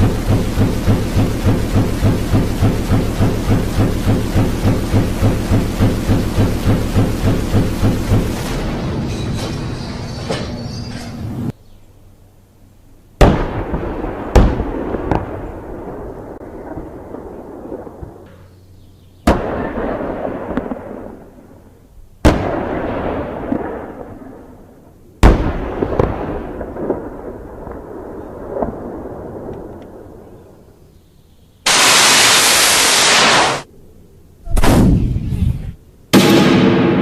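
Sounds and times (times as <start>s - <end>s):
heavy gunshots with rolling echo: 0.0s - 9.8s, 13.2s - 18.2s, 19.2s - 30.2s, 31.7s - 33.7s, 34.5s - 37.0s
dense blast of noise: 0.0s - 10.2s, 31.7s - 33.7s.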